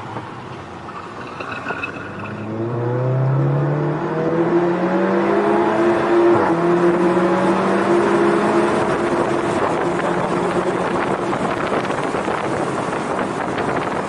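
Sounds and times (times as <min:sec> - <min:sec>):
car engine accelerating hard: 0:02.2 - 0:14.0.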